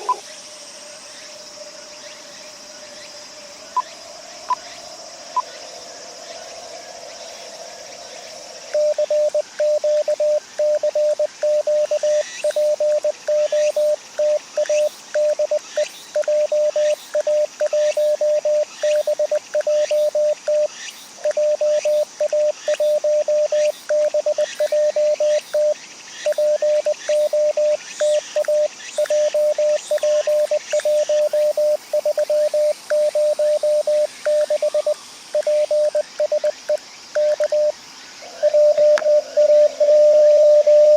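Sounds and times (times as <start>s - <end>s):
receiver hiss: 0.0s - 0.4s, 3.6s - 40.9s
morse code tone: 26.3s - 37.7s, 38.4s - 40.9s.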